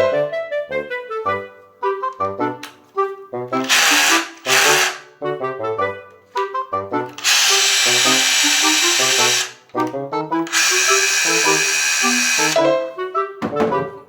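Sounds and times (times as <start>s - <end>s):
background music with clarinet: 0.0s - 14.0s
hammer drill running: 3.6s - 5.0s, 7.2s - 9.6s, 10.5s - 12.6s.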